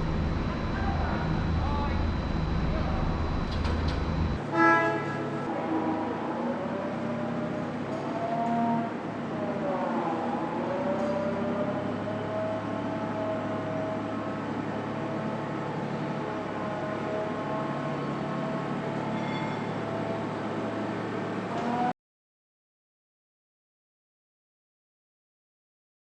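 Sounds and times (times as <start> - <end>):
electric train whine and hum: 0.0 - 21.9.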